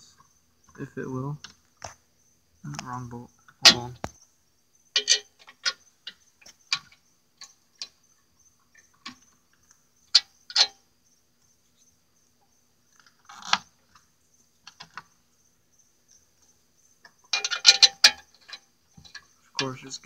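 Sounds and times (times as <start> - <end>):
metal clicks and clinks: 5.0 - 8.0, 10.1 - 10.8, 17.3 - 20.0.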